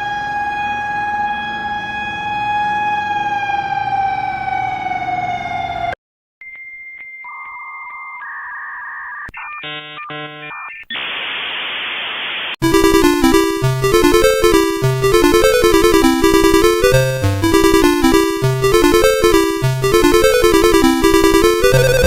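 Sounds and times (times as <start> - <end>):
horn-like siren tone: 0.0 - 6.0, 12.6 - 22.0
rapid switching tone chirps: 6.4 - 22.0
burst of static: 9.4 - 12.6
electronic alert tones: 12.6 - 22.0.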